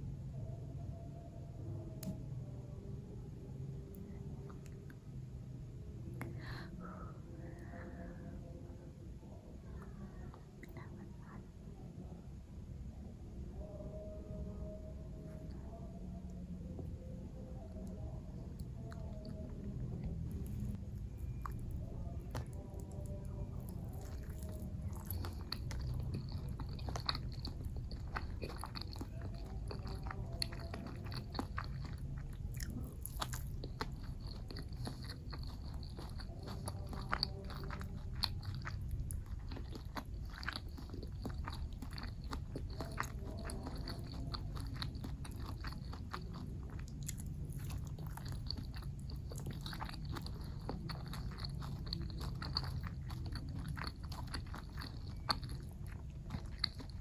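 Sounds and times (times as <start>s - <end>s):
low hum: 0.0s - 57.0s
biting and chewing crunches: 18.6s - 57.0s.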